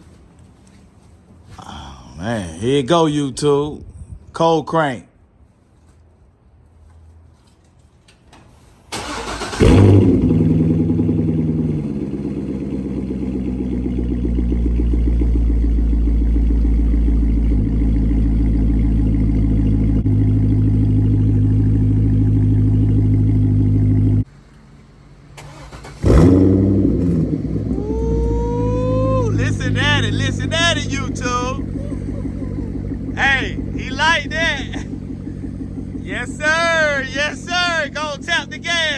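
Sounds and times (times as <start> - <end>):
engine fast idle: 9.0 - 24.2, 25.4 - 38.9
car engine revving: 9.0 - 24.3, 25.4 - 38.9.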